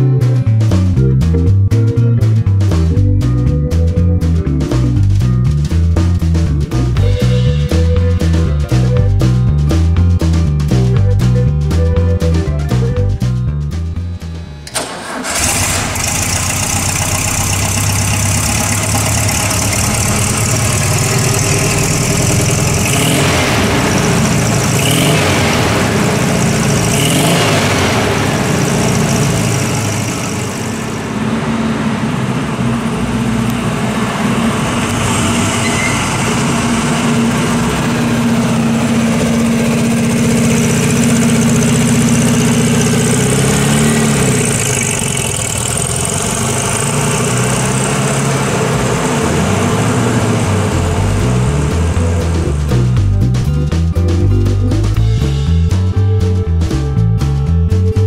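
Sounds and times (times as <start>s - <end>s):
car engine revving and idling: 13.0s - 53.6s.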